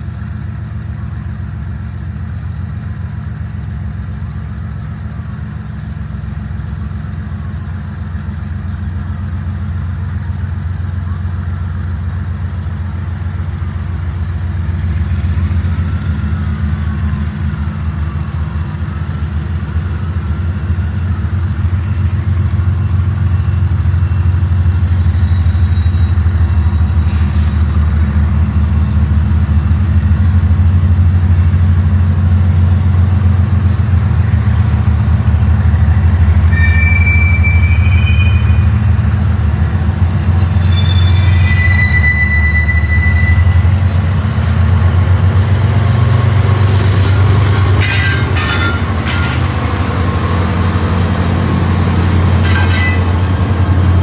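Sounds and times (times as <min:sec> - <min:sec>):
diesel locomotive engine drone: 0:00.0 - 0:54.0
train wheel squeal: 0:13.4 - 0:28.2, 0:36.2 - 0:39.3, 0:40.2 - 0:45.6, 0:46.6 - 0:49.7, 0:51.8 - 0:54.0.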